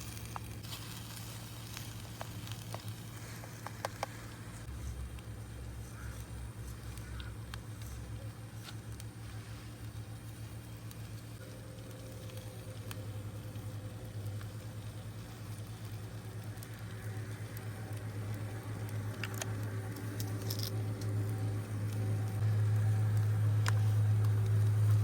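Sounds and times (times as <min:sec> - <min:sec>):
fire pops: 0:00.0 - 0:05.3
campfire rumble: 0:00.0 - 0:25.0.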